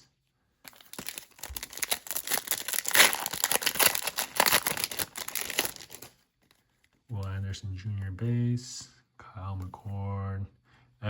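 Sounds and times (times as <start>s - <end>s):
foil pack crinkling and tearing: 0.7s - 6.2s.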